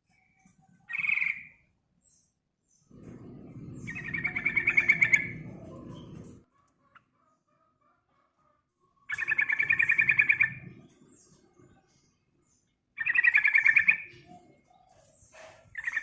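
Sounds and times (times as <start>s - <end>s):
low rumble: 2.9s - 6.4s
bird rattling call: 3.7s - 6.4s, 9.1s - 10.7s, 13.0s - 14.3s, 15.3s - 16.0s
bird chattering call: 3.9s - 5.4s, 9.1s - 10.7s, 13.0s - 14.2s.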